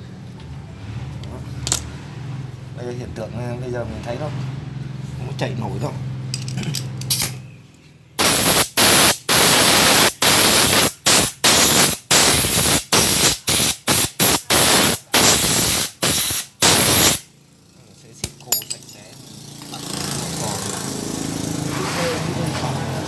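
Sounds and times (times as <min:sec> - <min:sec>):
air blow gun hissing blasts: 0:08.2 - 0:17.3.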